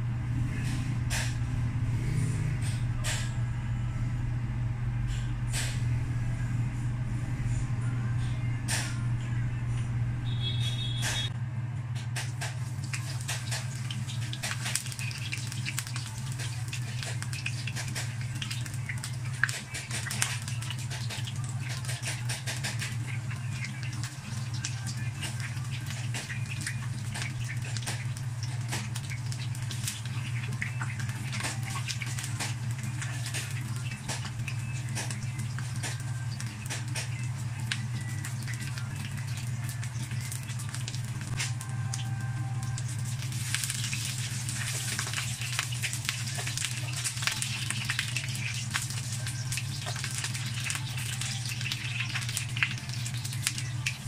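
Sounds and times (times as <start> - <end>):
low hum: 0.0 - 54.0
food frying in hot oil: 12.2 - 54.0.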